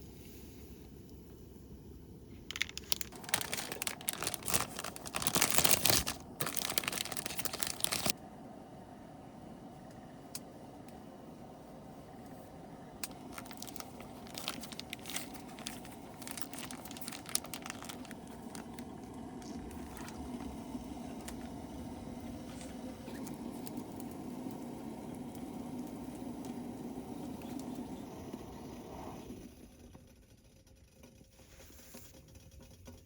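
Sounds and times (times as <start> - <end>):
gas burner hissing: 14.8 - 17.0, 18.0 - 29.7.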